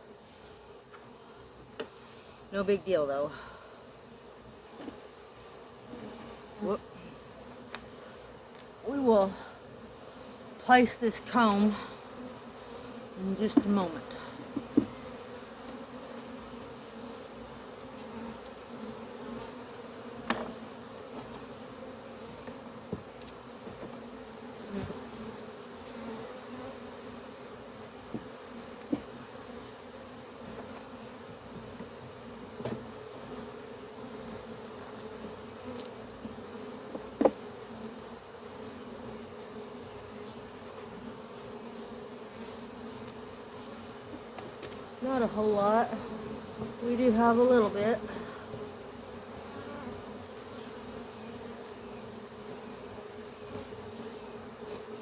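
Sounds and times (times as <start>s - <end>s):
bees buzzing: 0.0s - 55.0s
hive boxes knocking: 13.3s - 15.1s, 20.2s - 20.6s, 28.1s - 29.2s, 36.9s - 37.5s.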